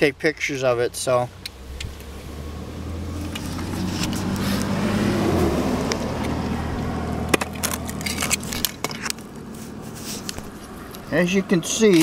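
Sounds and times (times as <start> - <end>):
camera handling noise: 7.3 - 11.1.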